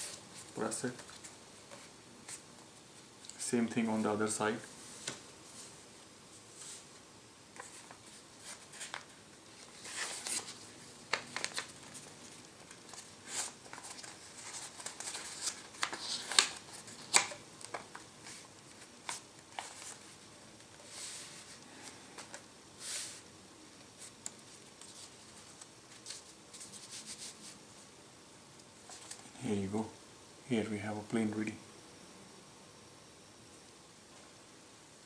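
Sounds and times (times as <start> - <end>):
paper rustling and crinkling: 6.4 - 23.2, 23.9 - 27.6, 28.8 - 29.4
paper fold clicks: 7.6 - 20.0.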